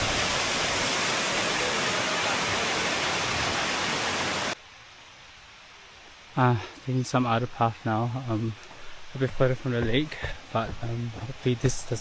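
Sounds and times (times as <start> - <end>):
water rushing: 0.0 - 4.6
faint hiss: 0.0 - 12.0.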